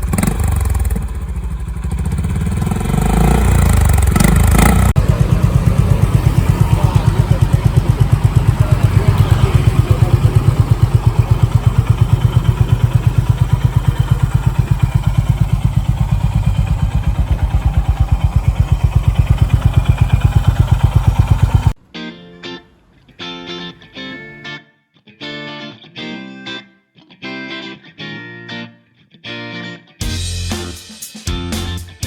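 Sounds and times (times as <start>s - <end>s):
motorcycle engine idling: 0.0s - 21.8s.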